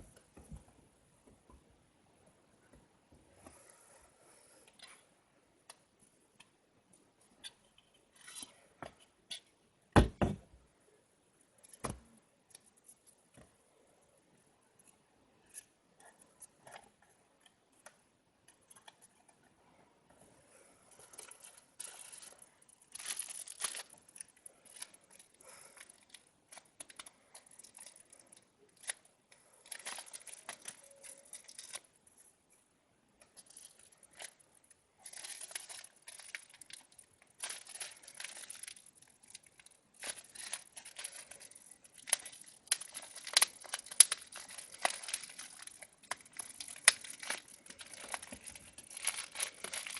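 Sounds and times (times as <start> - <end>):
wrapping material crinkling: 20.6 - 49.9.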